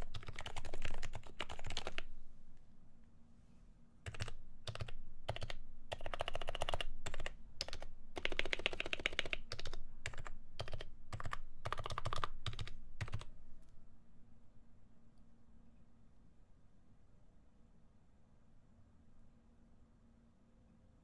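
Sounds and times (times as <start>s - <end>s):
keyboard typing: 0.0s - 2.1s, 4.1s - 13.4s.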